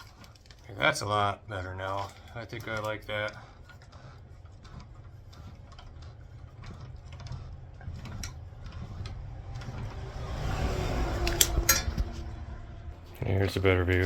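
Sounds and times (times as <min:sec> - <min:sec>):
low steady hum: 0:00.0 - 0:14.0
tools clicking and tapping: 0:11.2 - 0:12.2.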